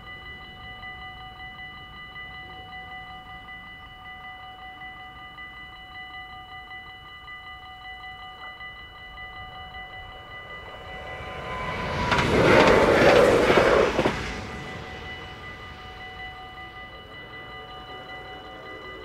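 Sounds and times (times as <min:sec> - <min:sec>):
level-crossing bell ringing: 0:00.0 - 0:19.0
train passing: 0:00.0 - 0:19.0.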